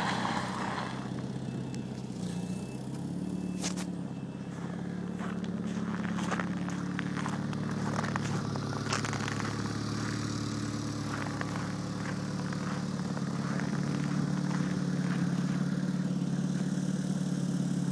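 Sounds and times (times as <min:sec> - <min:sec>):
car engine idling: 0:00.0 - 0:17.9
small clicks and crunches: 0:06.6 - 0:10.2.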